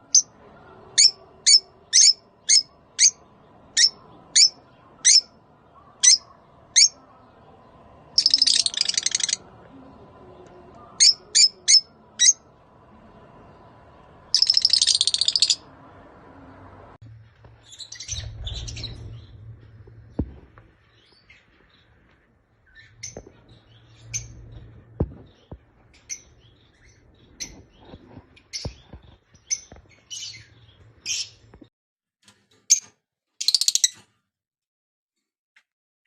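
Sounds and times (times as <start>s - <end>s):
lovebirds chirping and squeaking: 0.0s - 9.5s, 10.4s - 12.4s, 14.3s - 15.7s, 17.5s - 31.7s, 32.6s - 34.1s
faint low hum: 0.0s - 31.6s.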